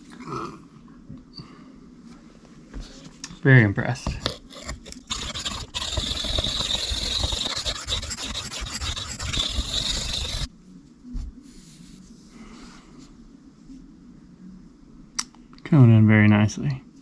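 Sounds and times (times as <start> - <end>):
knife scraping on sharpening plate: 4.3 - 10.5.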